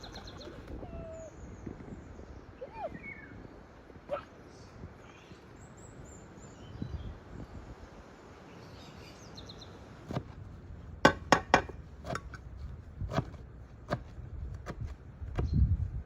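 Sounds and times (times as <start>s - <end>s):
birds chirping faintly: 0.0s - 11.9s
knocks and clinks of food preparation: 11.1s - 12.4s.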